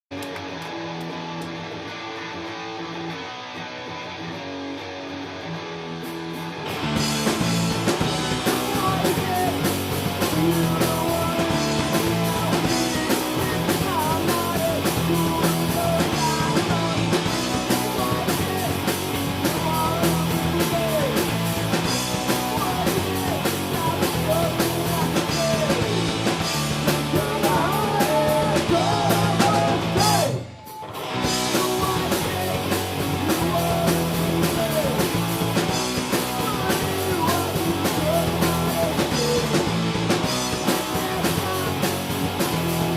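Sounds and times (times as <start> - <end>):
punk rock band playing: 0.1 - 42.9
person singing: 8.3 - 21.4, 22.2 - 42.9.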